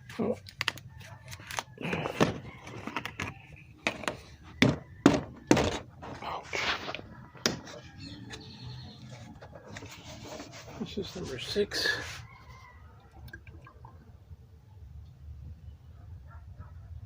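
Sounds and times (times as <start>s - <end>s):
plastic bottles knocking: 1.8s - 5.9s.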